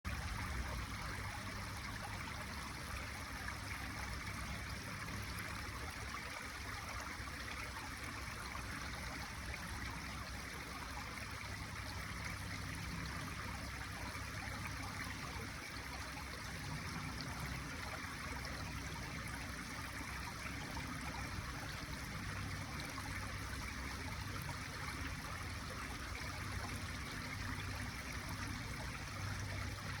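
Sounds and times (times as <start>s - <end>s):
brook babbling over stones: 0.1s - 30.0s.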